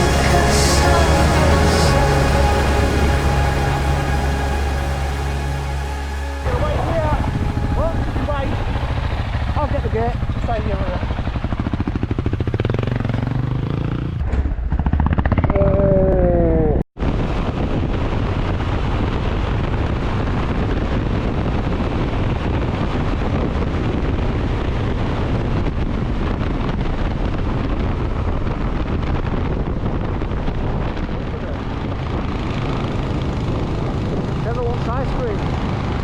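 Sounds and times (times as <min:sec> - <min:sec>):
motorcycle engine running: 0:00.0 - 0:15.7
wind rush on microphone: 0:00.0 - 0:15.9, 0:17.0 - 0:36.0.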